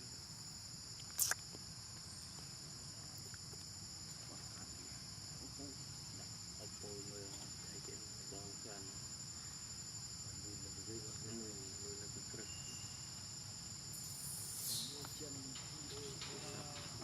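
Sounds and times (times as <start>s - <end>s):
high-pitched insect chorus: 0.0s - 17.0s
brief hiss: 14.0s - 15.3s.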